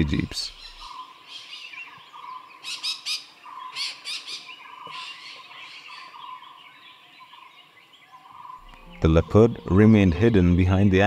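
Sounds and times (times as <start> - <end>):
soft bird calls: 0.0 - 10.3
birds squawking harshly: 0.5 - 6.4.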